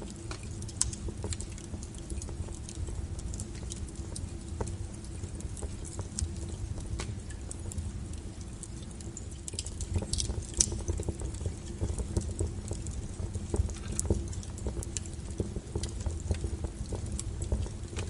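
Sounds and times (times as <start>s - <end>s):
burning logs crackling: 0.0s - 18.0s
low rumble of flame: 0.0s - 18.0s
sharp pops of fire: 6.9s - 7.4s.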